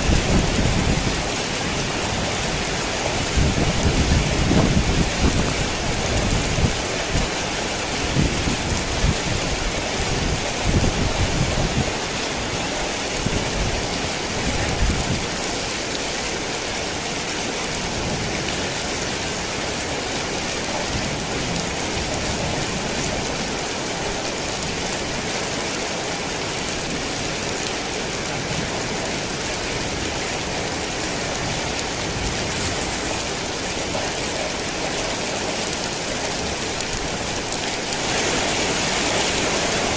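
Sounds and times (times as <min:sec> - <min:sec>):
thunder rumbling: 0:00.0 - 0:07.3
heavy rain pouring: 0:00.0 - 0:39.9.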